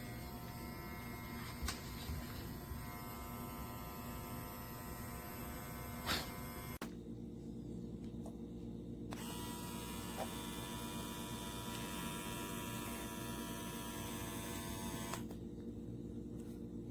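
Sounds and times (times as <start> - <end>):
electric trimmer whining: 0.0 - 6.8, 9.1 - 15.4
low electrical hum: 0.0 - 16.9.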